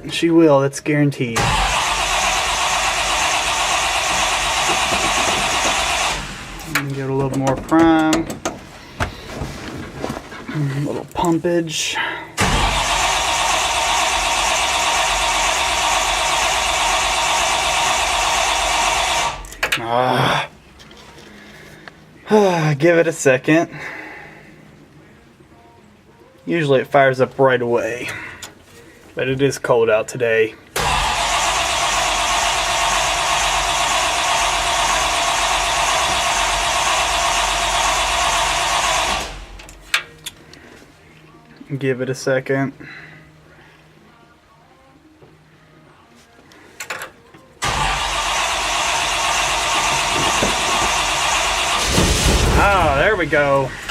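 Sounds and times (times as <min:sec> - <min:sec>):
starter cranking engine: 0:01.4 - 0:08.4, 0:12.4 - 0:19.7, 0:30.7 - 0:39.8, 0:47.6 - 0:53.9.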